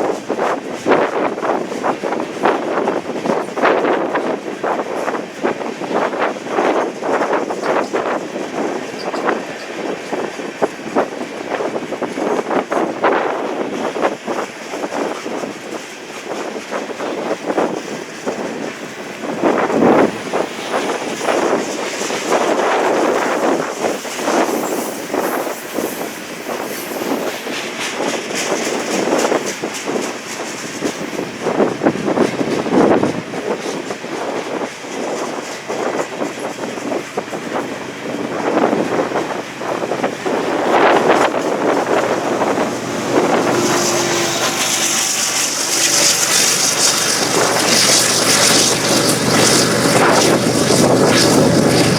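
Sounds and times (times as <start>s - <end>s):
train wheels rumbling and clattering: 0.0s - 51.9s
wind buffeting microphone: 0.0s - 51.9s
high-pitched wheel squeal: 23.0s - 28.0s, 42.0s - 51.9s.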